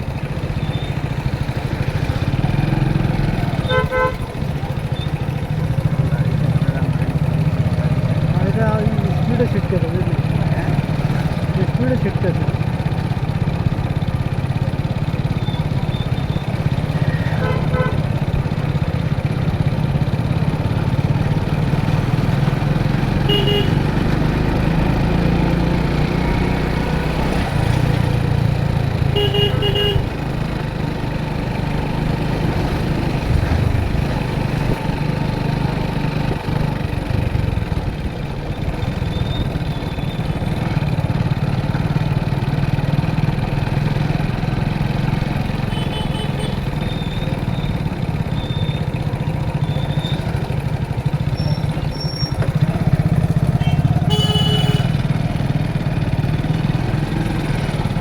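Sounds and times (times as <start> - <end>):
motorcycle engine running: 0.0 - 58.0
vehicle horn beeps: 3.6 - 4.3, 23.2 - 23.9, 29.1 - 30.2, 45.7 - 47.7, 53.6 - 55.0.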